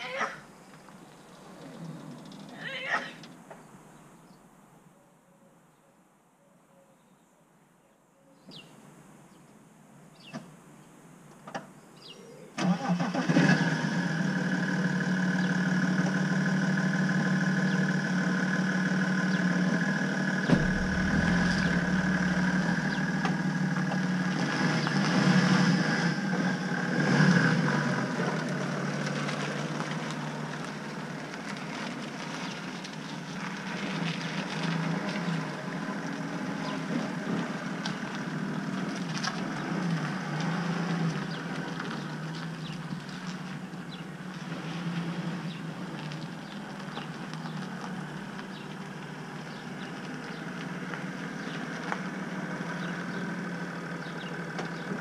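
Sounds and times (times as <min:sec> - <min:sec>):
engine revving: 0:12.6 - 0:28.5
diesel engine starting and idling: 0:12.6 - 0:32.0
knocks: 0:20.5 - 0:23.4.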